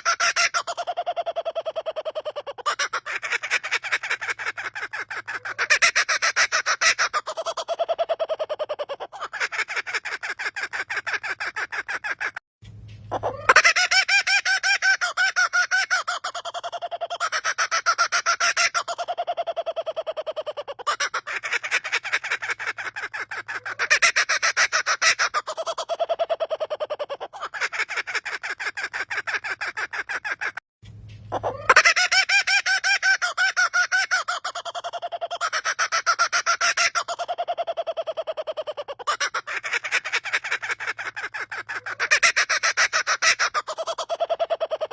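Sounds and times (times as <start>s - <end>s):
bird call like laughter: 0.0s - 12.4s, 13.1s - 30.6s, 31.3s - 44.9s.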